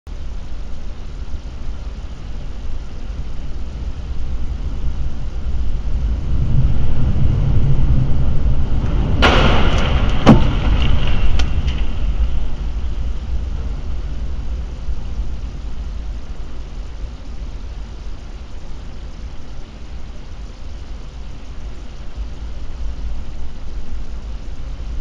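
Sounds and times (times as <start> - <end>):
car road and wind rumble: 0.1 - 25.0
sharp crack: 8.8 - 13.8
plastic object smashing: 9.2 - 12.1.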